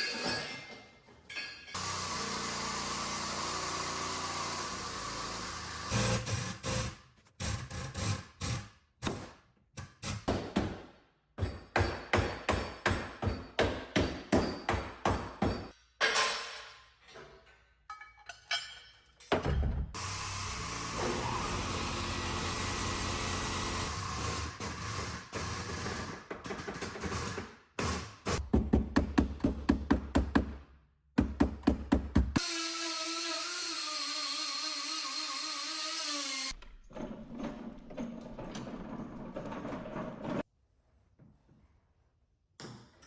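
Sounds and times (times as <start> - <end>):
hammer strikes on metal: 11.4 - 16.3.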